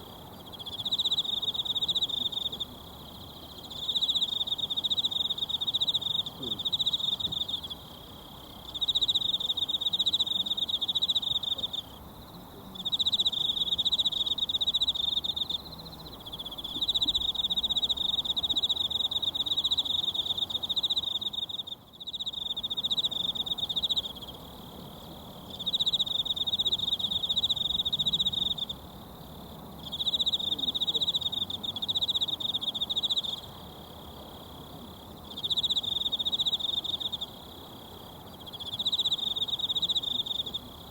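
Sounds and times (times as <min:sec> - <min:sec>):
insect trilling: 0:35.2 - 0:40.9.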